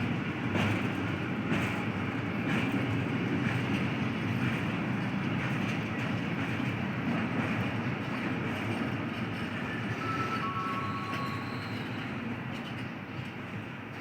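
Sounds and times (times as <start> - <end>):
train wheels rumbling on rail: 0.0 - 14.0
faint thin squeal: 9.6 - 12.3.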